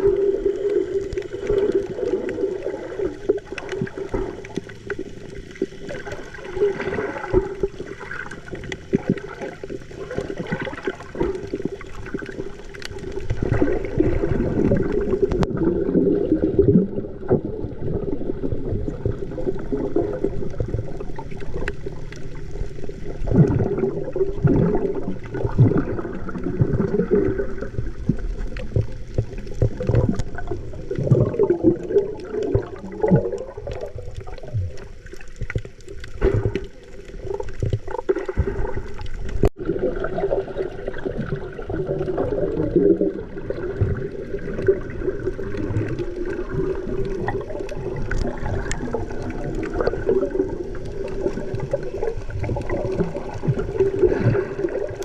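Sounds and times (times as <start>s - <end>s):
water sloshing and gurgling: 0.0s - 55.0s.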